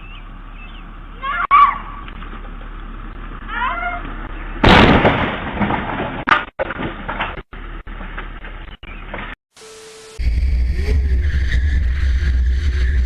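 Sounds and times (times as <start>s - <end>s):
loud crash: 4.6s - 6.9s
sharp crack: 4.6s - 7.4s.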